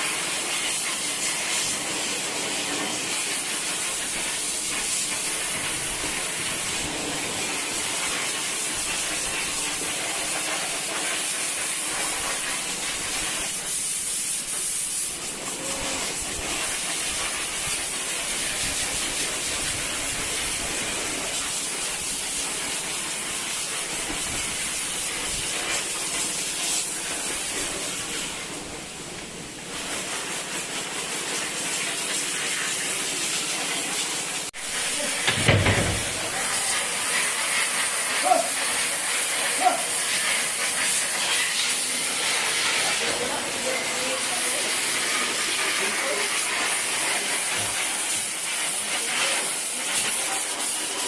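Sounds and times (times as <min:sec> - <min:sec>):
hose spraying water on floor: 0:00.0 - 0:51.0.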